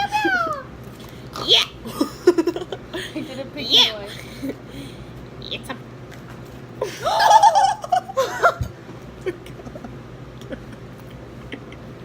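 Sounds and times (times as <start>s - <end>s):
young women laughing: 1.8s - 4.7s, 6.8s - 12.0s.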